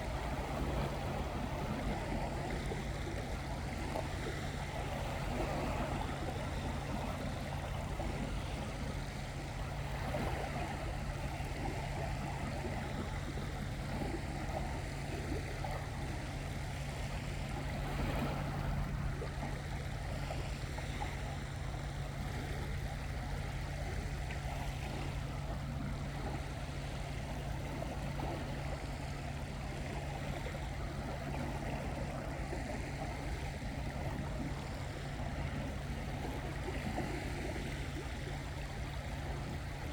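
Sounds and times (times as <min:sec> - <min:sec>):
constant low hum: 0:00.0 - 0:39.9.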